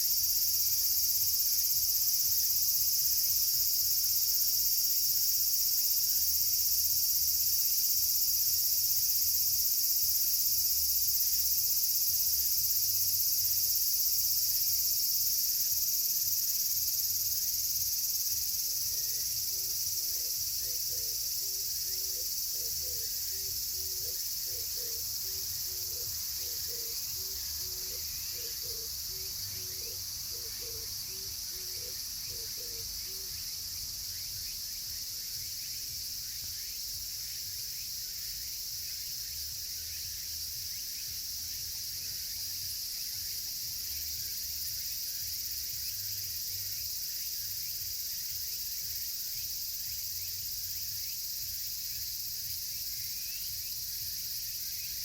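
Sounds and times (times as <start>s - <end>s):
cicadas buzzing: 0.0s - 55.0s.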